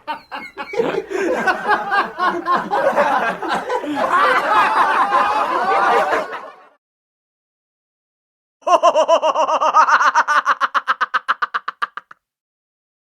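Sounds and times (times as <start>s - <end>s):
people laughing: 0.0s - 6.8s, 8.6s - 12.2s.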